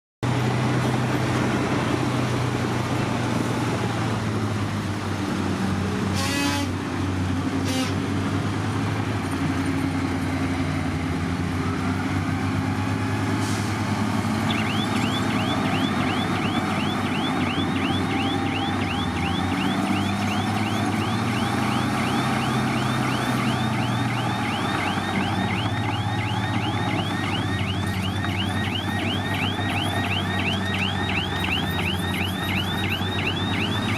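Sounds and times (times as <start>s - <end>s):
bulldozer diesel engine: 0.2s - 33.9s
reversing alarm chirping: 14.4s - 33.9s.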